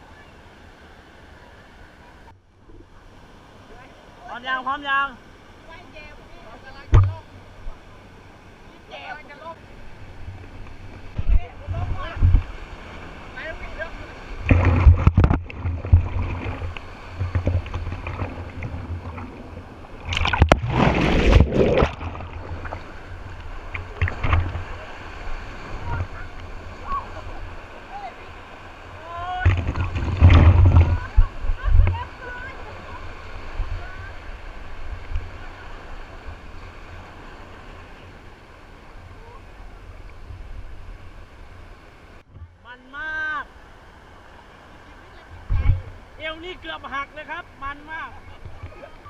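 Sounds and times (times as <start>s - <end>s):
water rushing: 0.0s - 49.0s
water splashing: 5.5s - 42.3s
wind rumble on microphone: 10.1s - 12.8s, 29.4s - 37.1s, 45.3s - 46.0s
rumbling on microphone: 14.3s - 24.9s, 29.4s - 32.1s.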